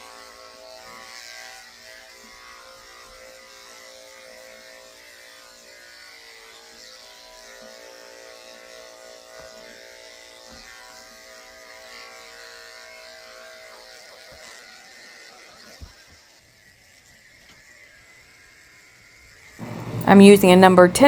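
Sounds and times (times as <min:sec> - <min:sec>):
electric clippers buzzing: 0:19.6 - 0:21.0.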